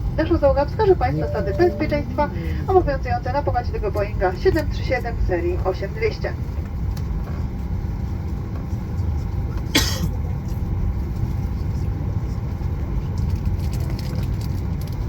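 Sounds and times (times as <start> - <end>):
aircraft cabin low rumble: 0.0 - 15.0.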